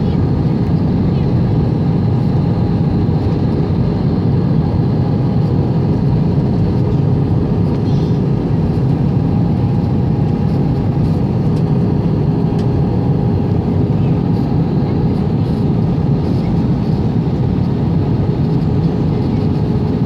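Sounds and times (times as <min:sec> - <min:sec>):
airliner cabin roar: 0:00.0 - 0:20.0.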